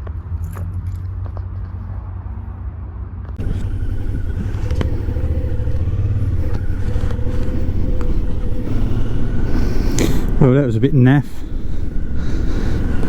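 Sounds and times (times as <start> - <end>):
rushing noise: 3.4 - 13.0
vehicle engine rumbling: 3.4 - 13.0.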